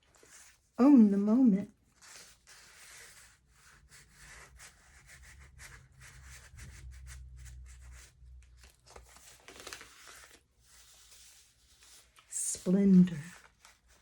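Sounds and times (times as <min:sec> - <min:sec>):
paper pages rustling: 0:04.6 - 0:14.0.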